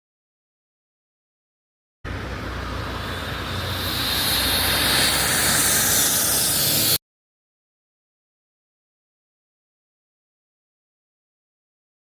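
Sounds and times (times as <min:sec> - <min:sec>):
truck engine hum: 0:02.1 - 0:07.0
tyre and road noise: 0:02.1 - 0:07.0.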